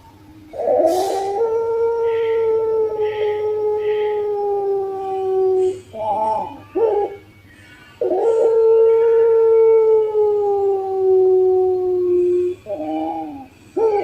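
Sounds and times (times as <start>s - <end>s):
dove cooing: 0.0s - 7.3s, 8.0s - 14.0s.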